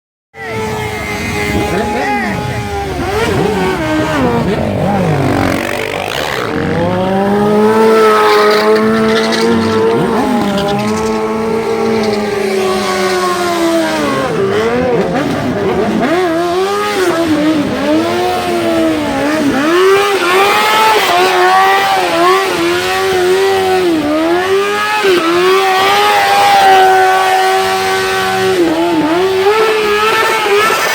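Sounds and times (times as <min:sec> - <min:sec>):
motorcycle engine revving: 0:00.4 - 0:30.9.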